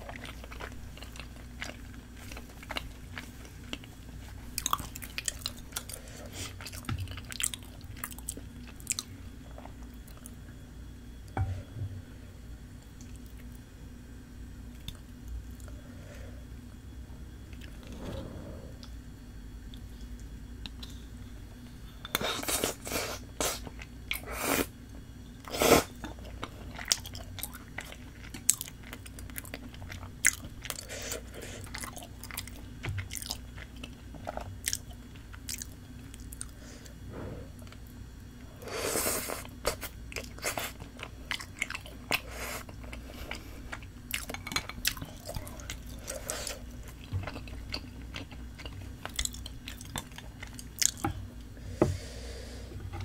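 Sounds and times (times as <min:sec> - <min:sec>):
person chewing food: 0:00.0 - 0:10.4, 0:25.9 - 0:38.0, 0:39.0 - 0:52.1.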